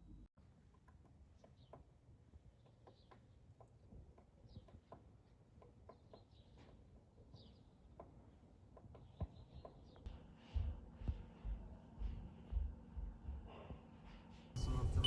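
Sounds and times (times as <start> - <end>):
small birds chirping: 2.6 - 10.1.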